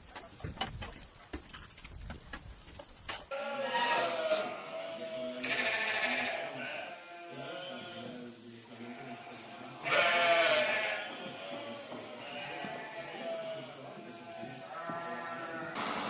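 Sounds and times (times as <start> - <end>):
calves bawling: 3.3 - 8.2, 8.9 - 16.0.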